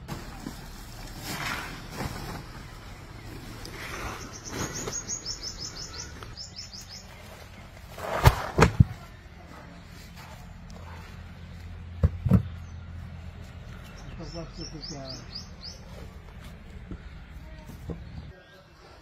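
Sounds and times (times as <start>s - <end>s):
bird chirping: 2.7s - 7.7s, 13.6s - 16.2s.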